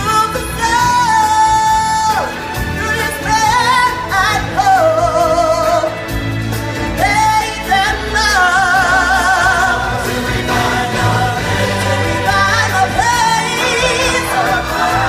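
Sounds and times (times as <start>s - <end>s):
band accompaniment: 0.0s - 15.0s
singers with vibrato: 7.0s - 15.0s.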